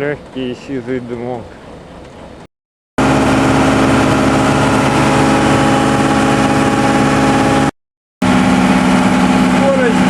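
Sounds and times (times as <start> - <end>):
marine diesel engine running: 3.0 - 10.0.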